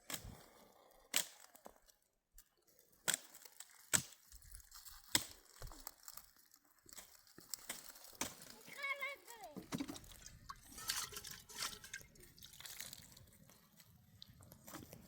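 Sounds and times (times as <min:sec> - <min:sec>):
dry wood snapping: 0:01.1 - 0:08.8.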